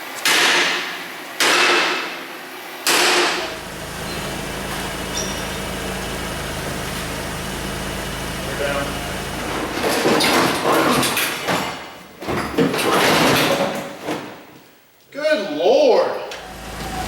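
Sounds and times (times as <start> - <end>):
steady low hum: 3.2 - 10.2.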